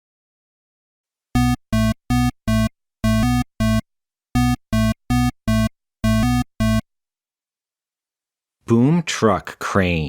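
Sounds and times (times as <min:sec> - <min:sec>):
short synthesized electronic notes: 0:01.4 - 0:03.8, 0:04.4 - 0:06.8.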